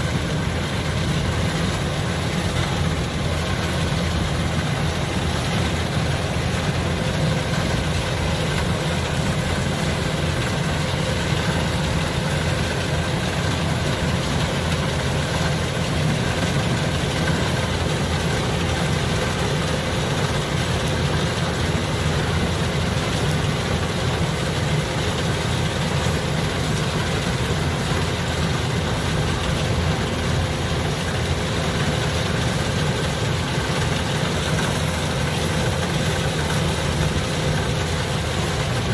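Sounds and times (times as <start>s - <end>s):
combine harvester diesel engine: 0.0s - 38.9s.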